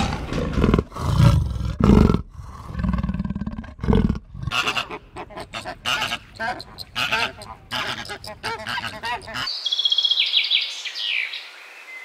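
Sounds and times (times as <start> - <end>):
leopard roaring: 0.0 - 4.6
flamingos honking: 4.5 - 9.5.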